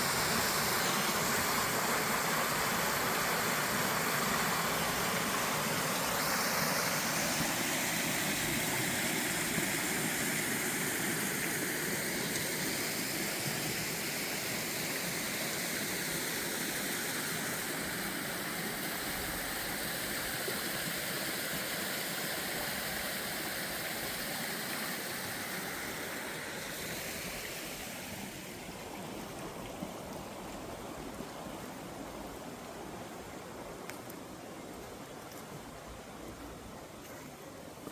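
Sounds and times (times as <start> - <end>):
flowing water rushing: 0.0 - 37.9.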